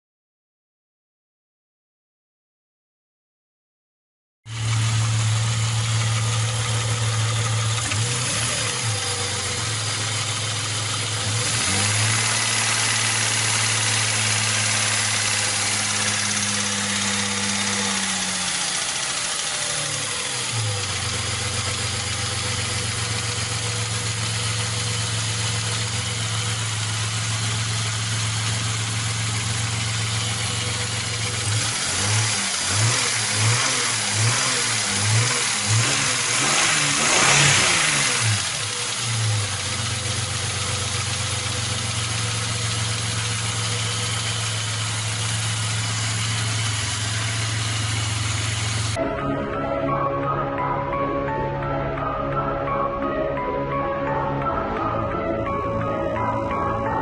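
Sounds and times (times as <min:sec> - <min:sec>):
car engine idling with knock: 0:04.5 - 0:49.0.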